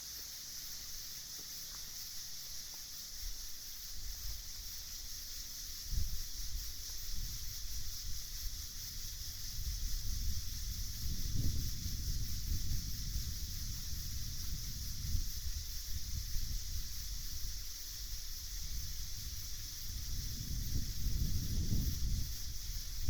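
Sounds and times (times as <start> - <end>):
night insects chorus: 0.0 - 23.0
wind rumbling on microphone: 5.6 - 23.0.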